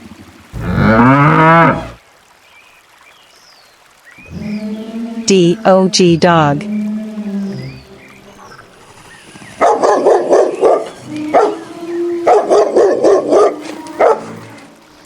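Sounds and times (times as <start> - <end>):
dog barking: 9.6 - 14.4.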